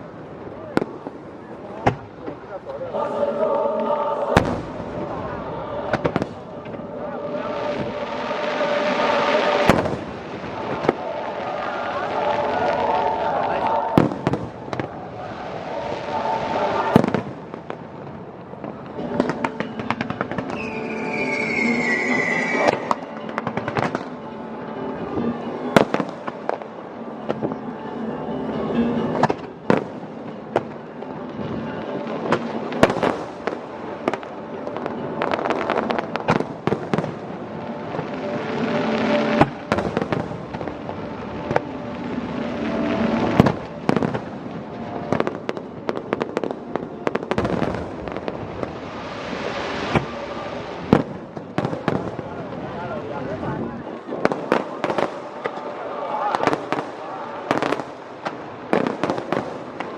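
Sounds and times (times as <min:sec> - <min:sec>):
fireworks bangs and crackling: 0:00.0 - 0:02.7, 0:04.2 - 0:27.6, 0:28.5 - 0:59.9
music: 0:00.0 - 0:59.9
firework whistle falling: 0:19.2 - 0:24.1.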